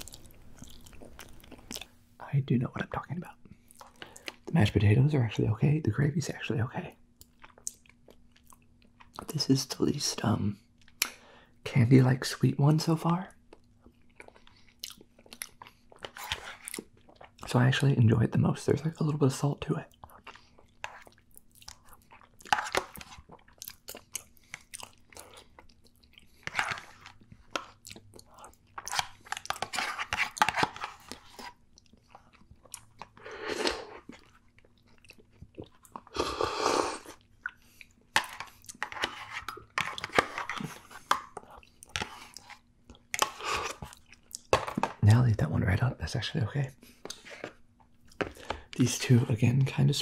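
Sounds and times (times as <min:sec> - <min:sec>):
chewing soft food: 0:00.0 - 0:02.0, 0:06.9 - 0:09.4, 0:13.3 - 0:17.5, 0:19.9 - 0:44.5.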